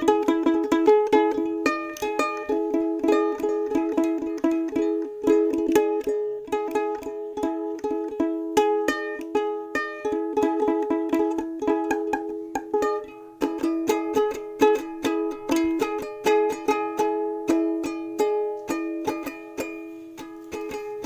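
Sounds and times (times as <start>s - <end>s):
plucked string instrument music: 0.0s - 21.0s.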